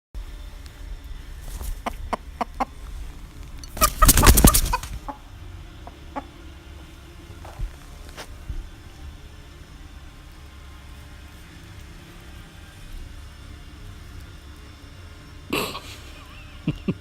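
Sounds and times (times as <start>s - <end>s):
chicken noisy flurry: 1.4s - 6.9s
chicken clucking: 1.5s - 6.4s.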